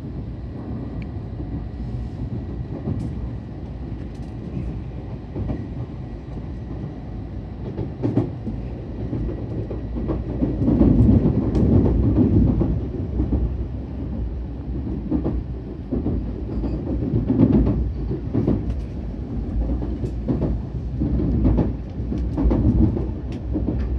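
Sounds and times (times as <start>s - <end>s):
train rumbling on rails: 0.0s - 23.9s.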